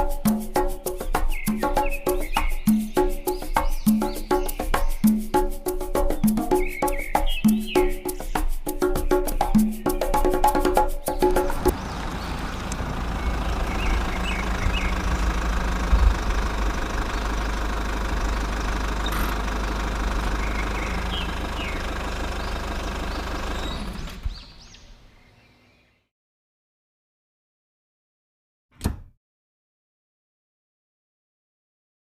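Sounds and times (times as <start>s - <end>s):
small motor running: 11.6s - 24.2s.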